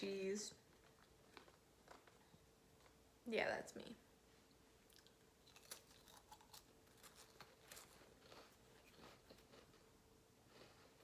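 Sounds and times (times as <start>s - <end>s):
person eating crackers: 0.7s - 3.0s, 4.9s - 11.0s.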